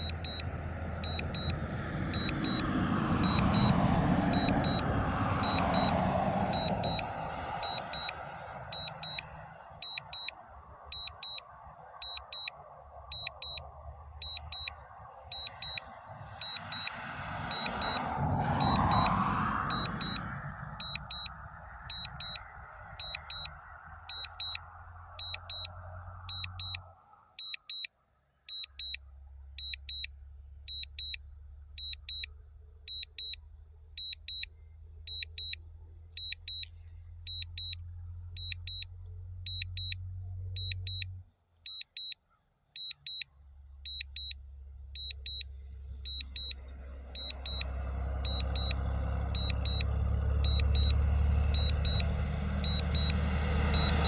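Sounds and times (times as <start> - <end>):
short high double beeps: 0.0 - 1.6, 2.2 - 27.9.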